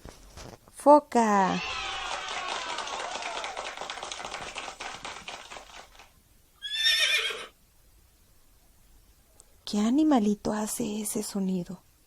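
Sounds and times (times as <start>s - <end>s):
horse whinnying: 6.6s - 7.6s.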